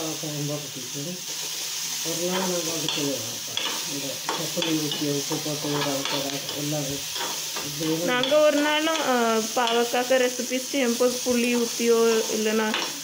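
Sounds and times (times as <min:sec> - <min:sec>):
vegetables sizzling in oil: 0:00.0 - 0:13.0
spatula scraping pan: 0:02.2 - 0:09.9
spatula clicking on pan: 0:02.3 - 0:10.0, 0:11.5 - 0:13.0.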